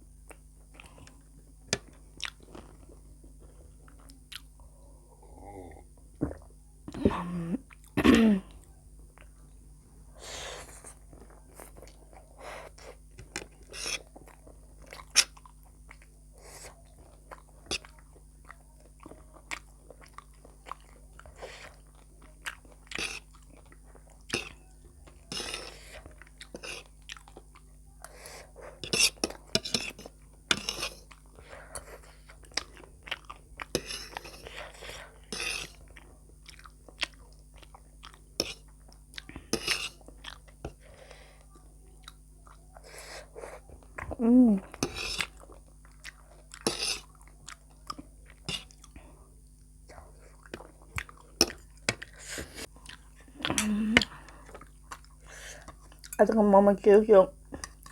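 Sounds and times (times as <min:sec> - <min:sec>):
person chewing food: 0:00.2 - 0:56.2, 0:57.4 - 0:57.9
food crunching: 0:10.6 - 0:56.3.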